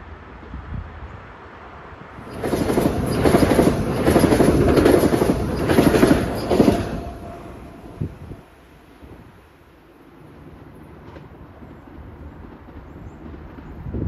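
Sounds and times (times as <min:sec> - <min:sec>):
train wheels clattering over rail joints: 0:02.2 - 0:08.0.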